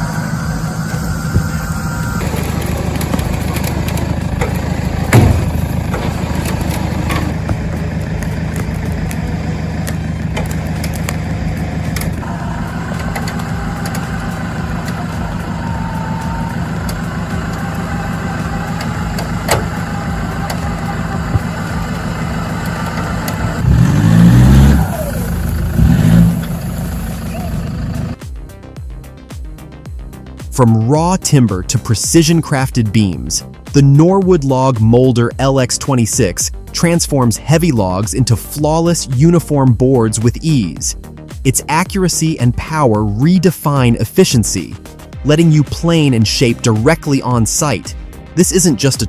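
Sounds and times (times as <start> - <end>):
vehicle engine running: 0.0 - 28.4.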